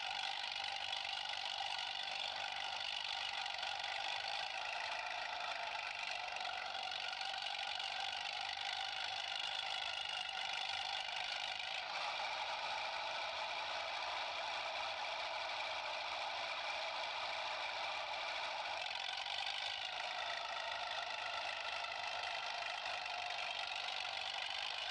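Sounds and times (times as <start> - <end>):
toy electric motor whining: 0.0 - 24.9.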